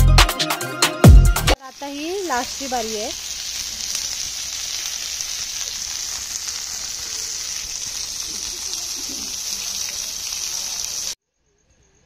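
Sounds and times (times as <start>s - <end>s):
chicken sizzling in hot oil: 1.6s - 11.2s.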